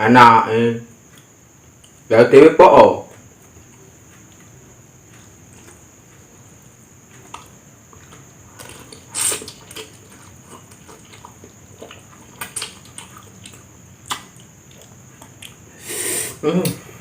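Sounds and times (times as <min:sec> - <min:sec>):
person chewing noodles: 0:03.4 - 0:15.9
wet mouth clicks: 0:08.6 - 0:15.6.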